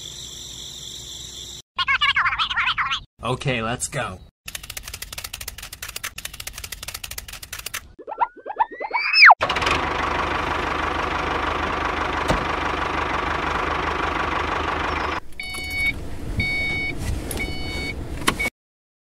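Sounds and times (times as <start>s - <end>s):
tractor engine running: 9.4s - 16.5s
reversing alarm beeping: 14.9s - 17.9s.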